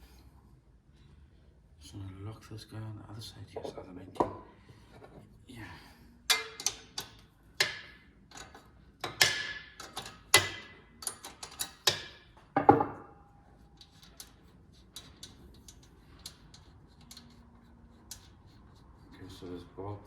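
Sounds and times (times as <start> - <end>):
wrench clicking and clanking: 6.3 - 12.4, 13.8 - 17.4.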